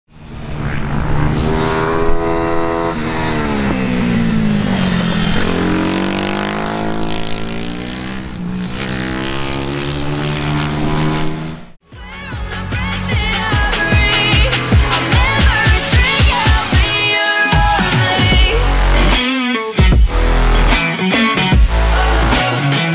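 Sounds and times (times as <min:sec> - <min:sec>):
pit bike engine revving: 0:00.1 - 0:11.8.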